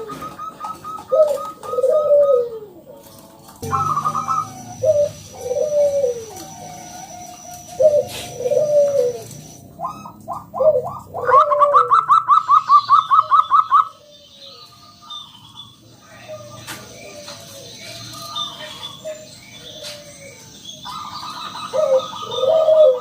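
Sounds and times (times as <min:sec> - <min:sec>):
dove cooing: 0:00.0 - 0:23.0
short higher bird notes: 0:03.6 - 0:09.3.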